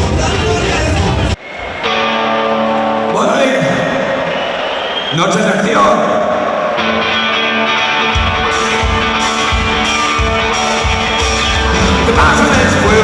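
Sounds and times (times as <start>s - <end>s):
drums and bass beat: 0.0s - 1.4s, 8.2s - 13.0s
electric guitar chords: 0.0s - 4.3s, 6.2s - 13.0s
person singing: 11.7s - 13.0s.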